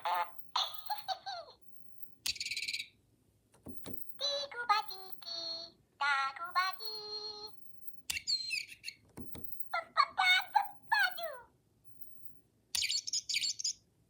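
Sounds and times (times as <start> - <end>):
electronic toy voices chattering: 0.0 - 1.6
high toy chirp: 2.2 - 3.0, 7.9 - 11.2, 12.8 - 13.8.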